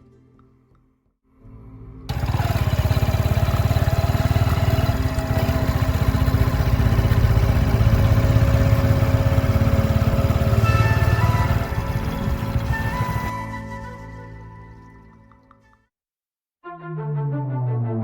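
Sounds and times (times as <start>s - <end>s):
engine running with low pulse: 2.1s - 13.3s.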